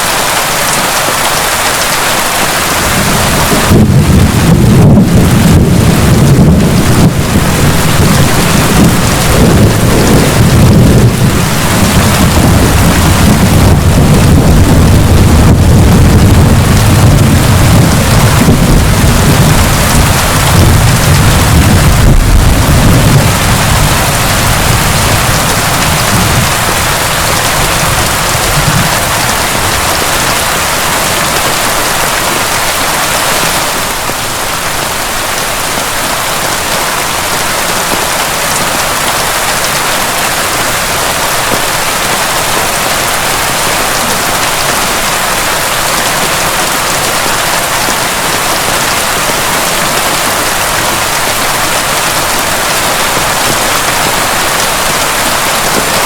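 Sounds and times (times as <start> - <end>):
heavy rain: 0.0 - 56.0
low thunder rumble: 2.7 - 31.7.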